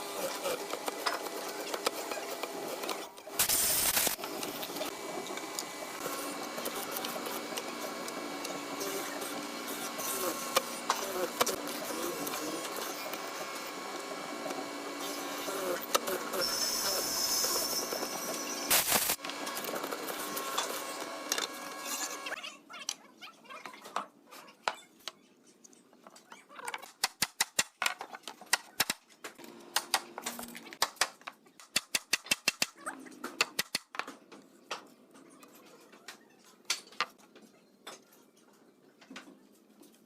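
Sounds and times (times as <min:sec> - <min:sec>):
power tool running: 0:00.0 - 0:22.4.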